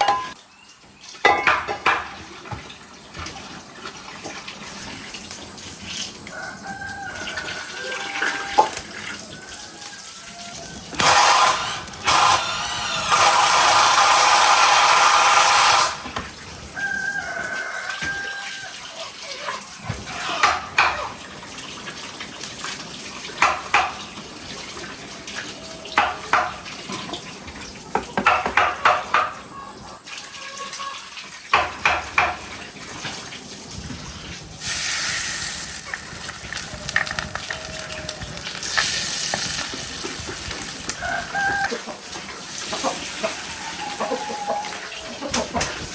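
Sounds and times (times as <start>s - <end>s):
dishes and utensils clinking: 0.0s - 0.4s, 1.2s - 2.7s
water pouring into container: 2.1s - 28.0s, 29.1s - 45.9s.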